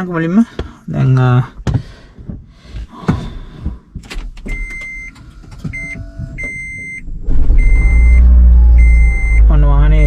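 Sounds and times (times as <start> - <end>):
car engine starting: 4.2 - 10.0
high-pitched electronic beeps: 5.8 - 9.6.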